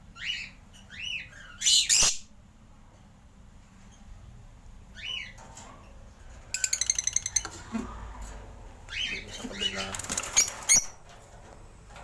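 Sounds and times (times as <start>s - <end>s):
bird chirp: 4.9s - 5.4s, 6.5s - 7.6s, 8.9s - 11.0s.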